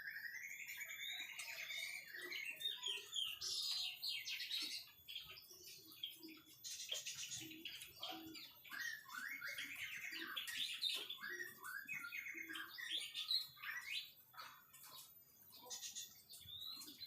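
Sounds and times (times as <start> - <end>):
bird singing varied whistles: 8.7 - 14.1.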